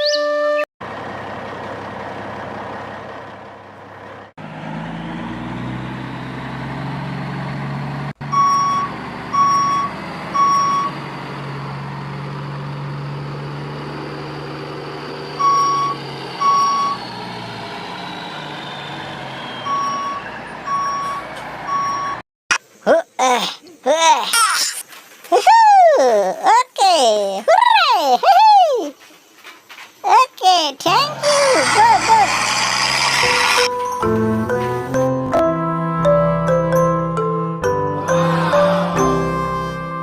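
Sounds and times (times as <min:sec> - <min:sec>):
truck engine running: 0:00.8 - 0:22.2, 0:30.9 - 0:40.0
reversing beeps: 0:08.3 - 0:10.9, 0:15.4 - 0:17.0, 0:19.4 - 0:22.2.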